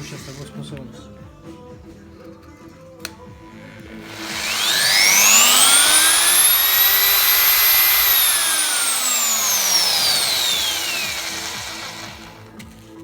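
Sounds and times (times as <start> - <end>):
drill motor whining: 3.7 - 12.5.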